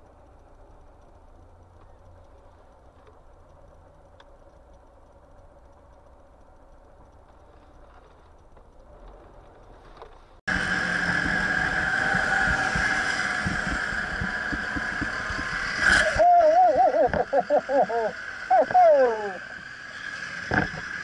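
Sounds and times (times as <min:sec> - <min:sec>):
car road and engine noise: 0:00.0 - 0:16.3, 0:17.1 - 0:21.0
raised wavering voice: 0:10.8 - 0:19.9.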